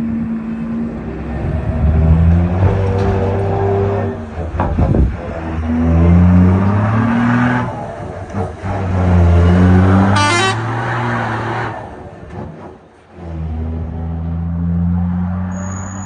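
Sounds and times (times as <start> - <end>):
diesel truck engine revving: 0.0 - 16.0
short high-pitched toot: 10.1 - 10.7.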